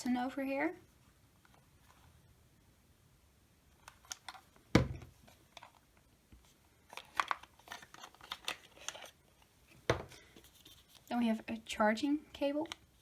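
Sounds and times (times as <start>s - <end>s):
packaging crinkling and rustling: 6.8s - 11.1s.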